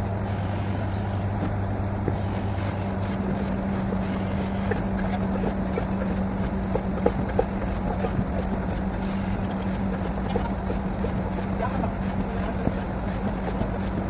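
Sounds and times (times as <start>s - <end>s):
drilling rig engine humming: 0.0s - 14.0s.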